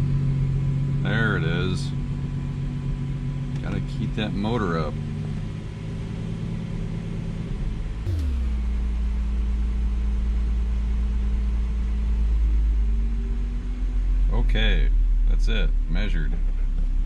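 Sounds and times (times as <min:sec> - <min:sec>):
car engine idling: 0:08.1 - 0:12.8.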